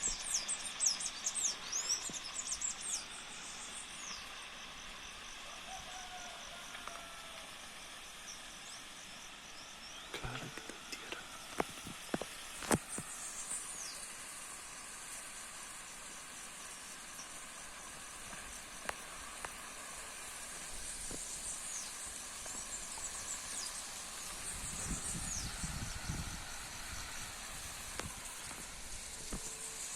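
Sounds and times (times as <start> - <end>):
fire burning hiss: 0.0 - 29.9
wind rumble on microphone: 24.3 - 29.6.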